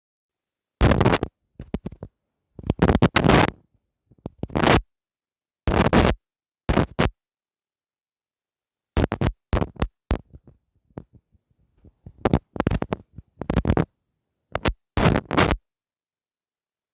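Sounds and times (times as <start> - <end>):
bursts of scratching noise: 0.8 - 3.6, 4.3 - 4.8, 5.7 - 7.1, 9.0 - 11.2, 11.8 - 13.9, 14.6 - 15.6.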